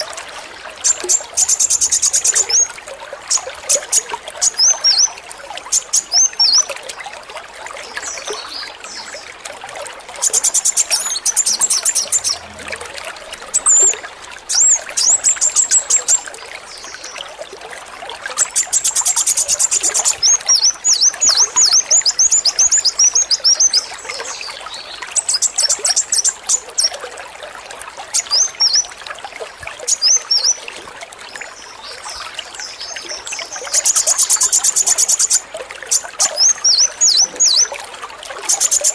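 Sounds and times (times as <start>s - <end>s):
water trickling: 0.0s - 38.9s
sunbird singing: 3.3s - 6.8s, 10.2s - 12.8s, 32.6s - 37.7s.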